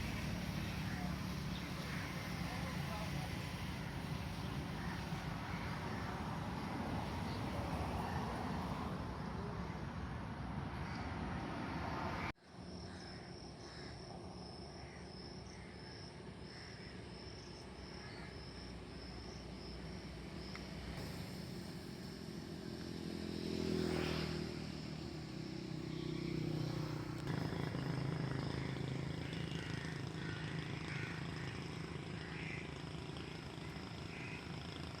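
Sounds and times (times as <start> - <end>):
motorcycle passing by: 0.0 - 12.3, 19.6 - 35.0.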